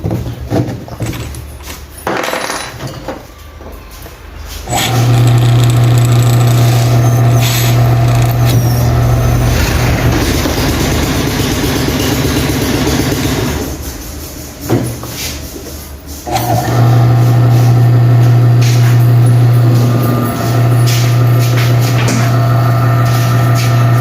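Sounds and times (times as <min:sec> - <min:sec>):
electric motor humming: 0:04.7 - 0:10.8.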